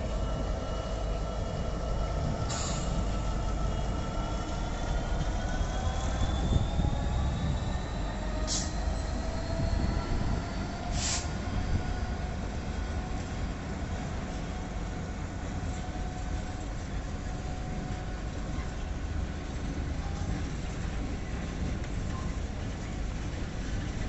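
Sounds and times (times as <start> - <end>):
train rumble and whine: 0.0 - 24.0
short hisses: 11.0 - 11.3.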